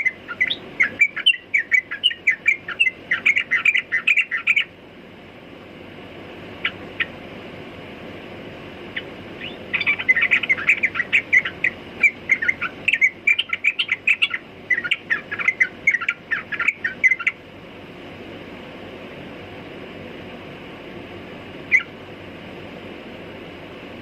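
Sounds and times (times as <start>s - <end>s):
bird singing bubbly chirps: 0.0s - 4.7s, 9.0s - 17.4s.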